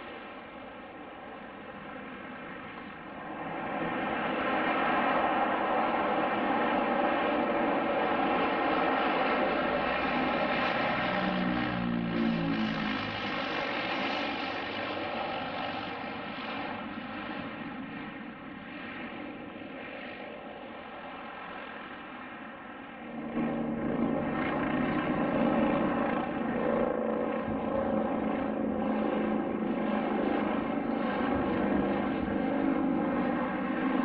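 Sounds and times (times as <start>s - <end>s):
aircraft engine drone: 0.0s - 34.0s.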